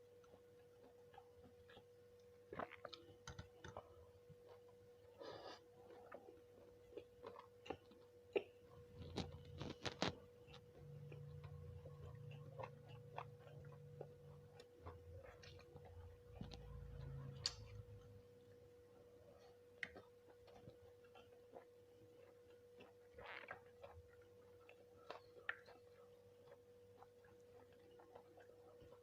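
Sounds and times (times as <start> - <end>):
chewing: 0.0 - 18.2, 19.0 - 29.0
faint steady hum: 0.0 - 29.0.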